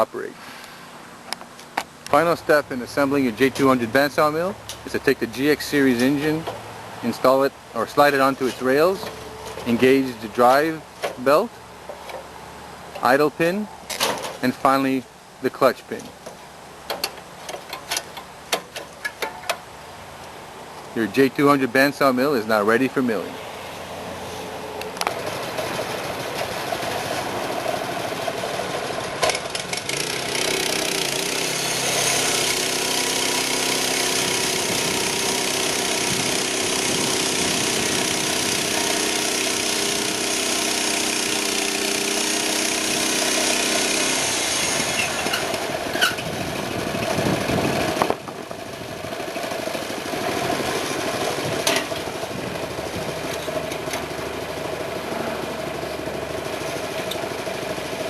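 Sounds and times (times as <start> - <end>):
small engine running: 25.0 - 58.0
band saw cutting wood: 25.3 - 46.3.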